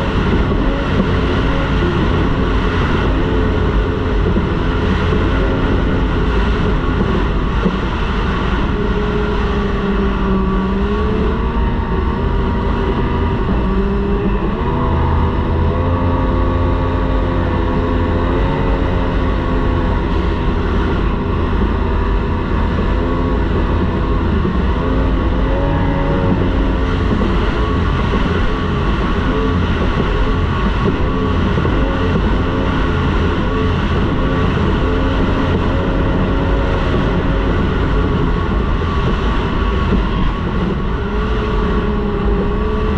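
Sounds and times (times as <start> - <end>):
outboard motor running hard: 0.0 - 42.9
rush of wind and water: 0.0 - 42.9.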